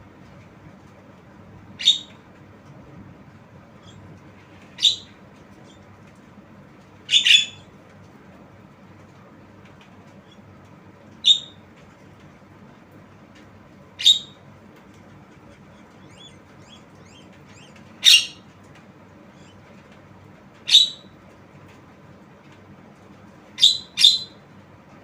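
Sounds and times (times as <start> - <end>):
bird giving harsh calls: 7.1 - 7.7, 15.8 - 18.4.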